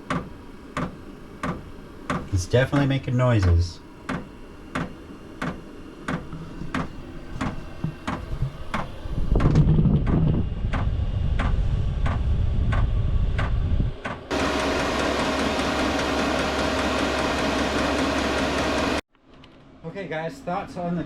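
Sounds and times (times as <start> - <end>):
heater rushing hum: 0.0 - 19.0
low rumble: 8.2 - 14.3.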